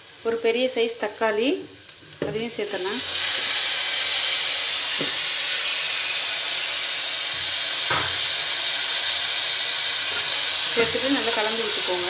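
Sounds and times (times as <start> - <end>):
tomato sizzling in hot oil: 0.0 - 12.0.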